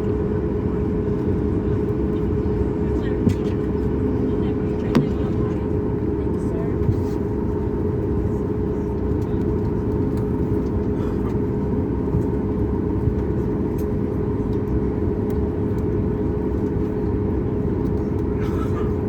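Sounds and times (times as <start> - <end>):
airplane cabin engine drone: 0.0 - 19.0.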